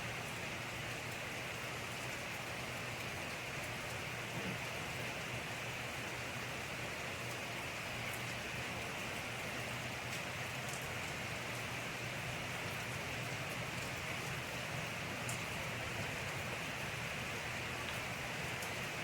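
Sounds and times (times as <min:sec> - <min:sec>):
steady rain hiss: 0:00.0 - 0:19.0
raindrop ticks: 0:10.1 - 0:11.7, 0:12.6 - 0:14.5, 0:15.2 - 0:17.0, 0:17.8 - 0:19.0.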